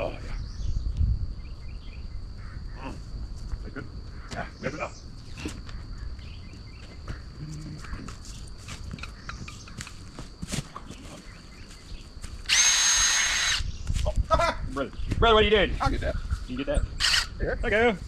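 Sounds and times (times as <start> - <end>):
power drill whining: 12.5 - 13.7, 17.0 - 17.3.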